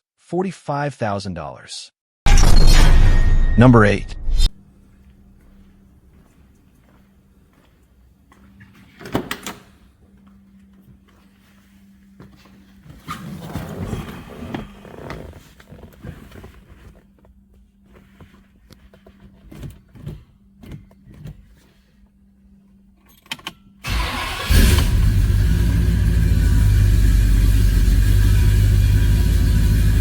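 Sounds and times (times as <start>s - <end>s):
car engine starting and idling: 23.8s - 30.0s.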